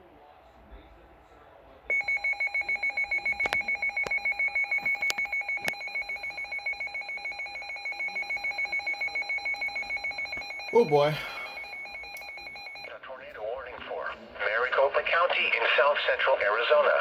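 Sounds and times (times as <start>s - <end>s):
two-pitch alarm tone pulsing: 1.9s - 12.9s.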